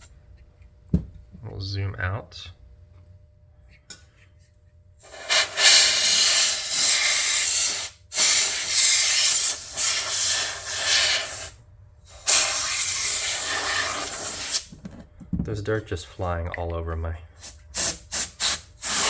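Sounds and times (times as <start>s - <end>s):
compressed air hissing blasts: 5.0s - 14.8s, 17.3s - 19.0s.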